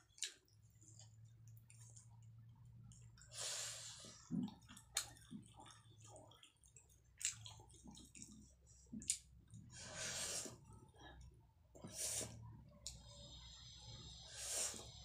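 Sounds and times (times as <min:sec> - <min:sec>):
wet chewing and mouth smacks: 0:00.0 - 0:03.3, 0:04.2 - 0:09.7.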